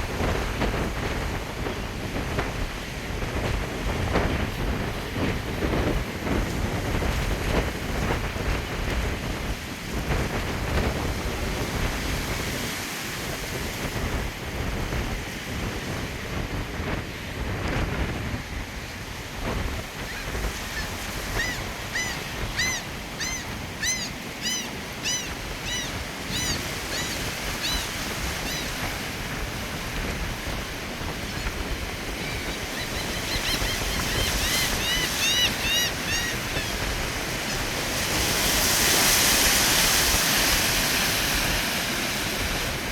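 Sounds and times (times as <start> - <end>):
gusty wind buffeting microphone: 0.0 - 42.9
ocean surf breaking: 0.0 - 42.9
short high squealing calls: 20.1 - 28.7, 32.4 - 36.8.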